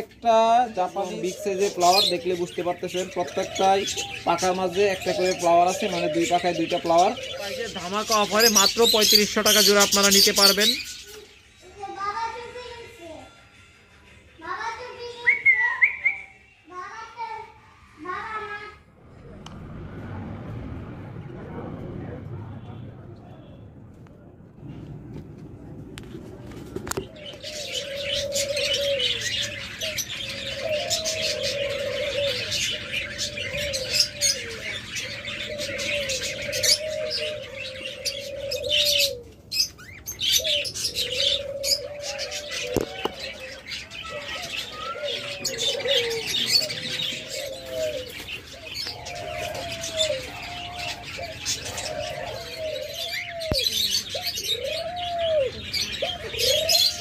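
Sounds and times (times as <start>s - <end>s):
doves cooing: 0.0s - 11.4s, 26.1s - 57.0s
small birds chirping: 0.0s - 20.4s, 26.1s - 57.0s.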